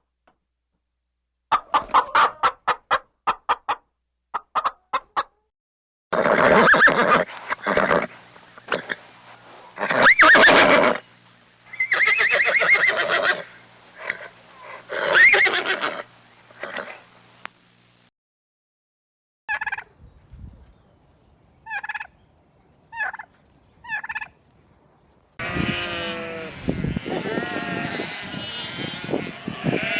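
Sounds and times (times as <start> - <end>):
farm animal calls: 6.2 - 17.2, 21.6 - 22.2, 22.9 - 24.4, 25.4 - 29.9.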